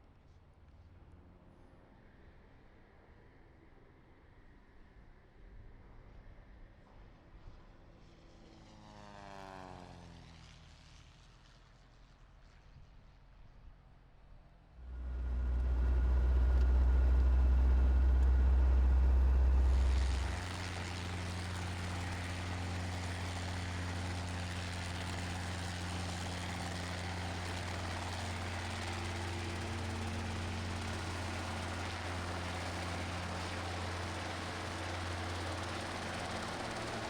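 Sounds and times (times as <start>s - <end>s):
helicopter engine and rotor: 14.9s - 37.0s.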